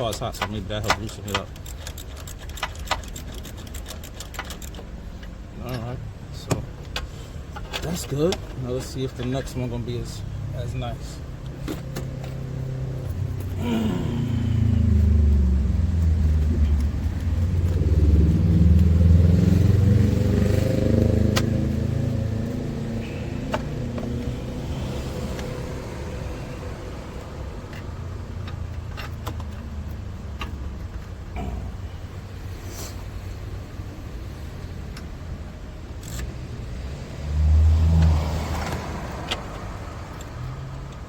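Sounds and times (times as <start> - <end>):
vehicle engine running: 9.9 - 32.2.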